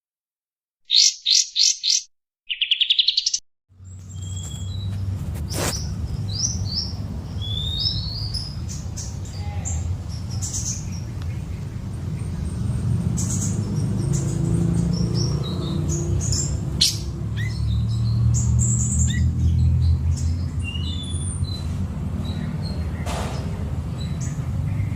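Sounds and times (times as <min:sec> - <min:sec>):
bird whistles: 0:00.9 - 0:03.4
bird trill: 0:00.9 - 0:05.0, 0:05.7 - 0:10.9
songbird chirping: 0:00.9 - 0:23.1.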